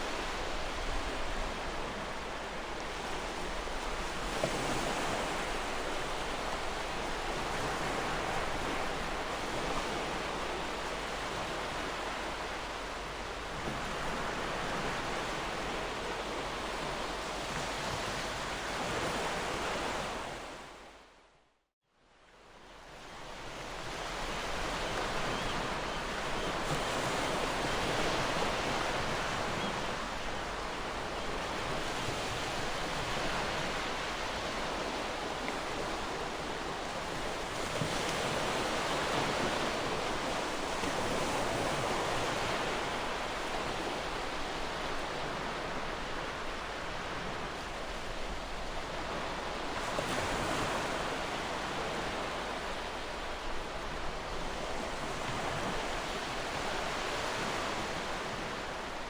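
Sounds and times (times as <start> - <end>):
ocean waves washing on shore: 23.2 - 59.0.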